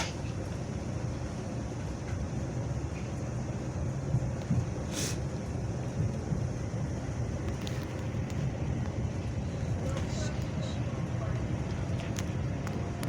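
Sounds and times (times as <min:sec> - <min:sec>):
train interior rumble: 0:00.0 - 0:13.0
short hiss: 0:04.9 - 0:05.2.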